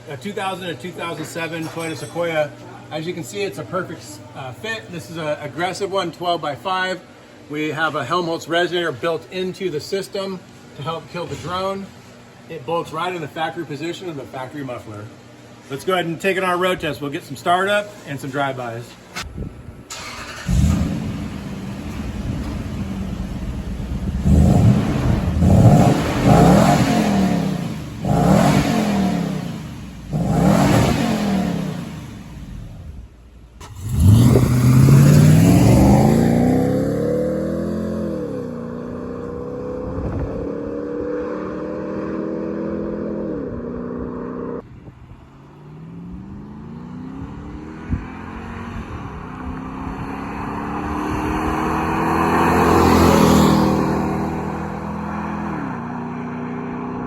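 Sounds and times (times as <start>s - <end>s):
car engine revving: 19.9s - 44.6s, 45.6s - 57.0s
car accelerating: 20.0s - 33.0s, 33.6s - 44.6s, 45.5s - 57.0s.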